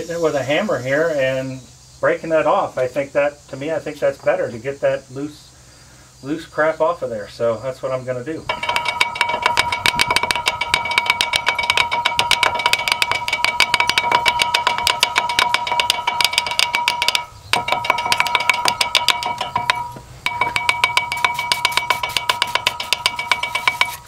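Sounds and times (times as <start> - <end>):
hammer tapping metal rotor: 8.5 - 24.0.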